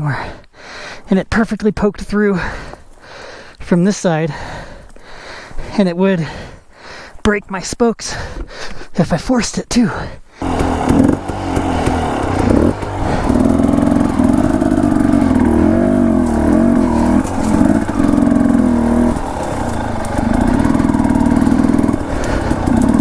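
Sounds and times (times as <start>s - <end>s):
dirt bike engine revving: 10.4s - 23.0s.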